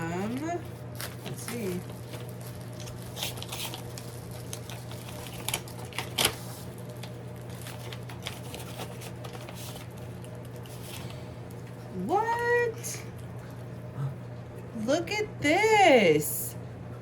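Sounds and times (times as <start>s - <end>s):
steady low hum: 0.0s - 17.0s
paper rustling and crinkling: 0.3s - 11.2s.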